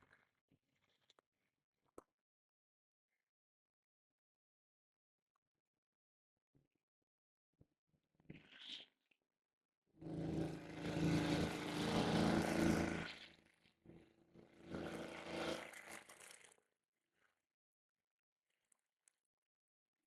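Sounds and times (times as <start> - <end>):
brush cutter engine running: 10.0 - 13.2, 14.6 - 16.3.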